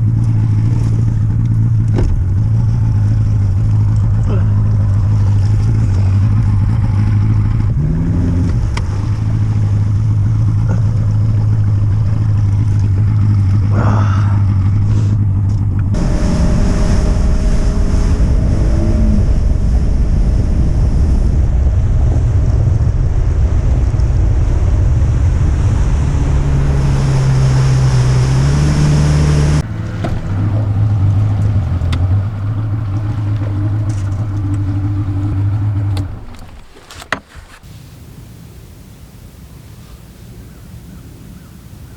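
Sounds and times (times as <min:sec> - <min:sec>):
outboard motor running: 0:00.0 - 0:21.4, 0:25.3 - 0:41.9
wind: 0:00.0 - 0:41.9
water rushing: 0:27.2 - 0:41.9.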